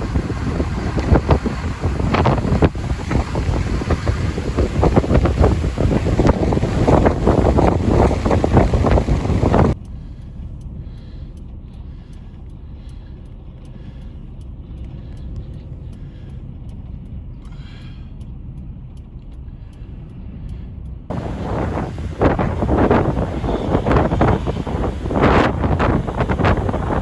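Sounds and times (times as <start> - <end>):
wind buffeting microphone: 0.0 - 9.8, 21.1 - 27.0
vehicle engine rumbling: 0.0 - 27.0.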